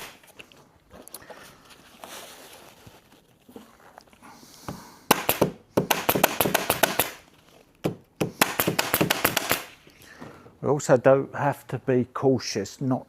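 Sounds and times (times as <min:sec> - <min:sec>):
soft rustle of webbing: 0:00.2 - 0:04.6.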